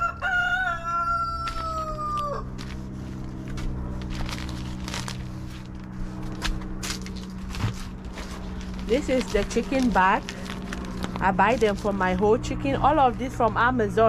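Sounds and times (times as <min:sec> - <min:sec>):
rooster crowing: 0:00.0 - 0:02.6
steady low hum: 0:00.0 - 0:14.0.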